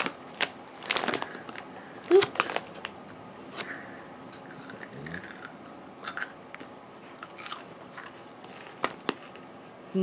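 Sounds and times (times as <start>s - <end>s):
person chewing popcorn: 4.4s - 9.5s.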